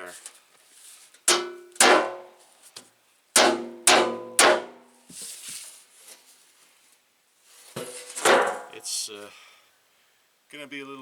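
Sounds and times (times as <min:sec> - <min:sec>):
sledgehammer striking metal: 0:01.3 - 0:02.4, 0:03.4 - 0:04.9, 0:08.1 - 0:08.8.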